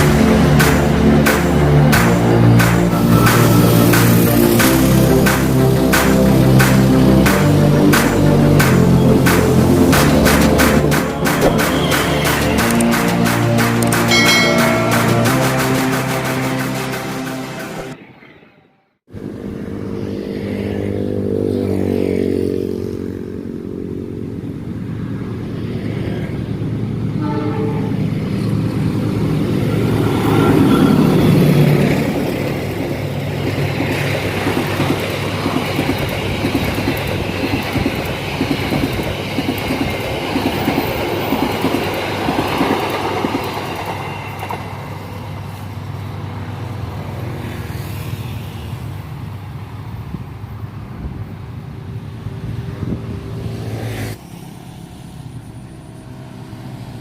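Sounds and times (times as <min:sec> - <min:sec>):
diesel locomotive engine running: 0:00.0 - 0:18.0
locomotive multi-tone horn: 0:27.2 - 0:28.5.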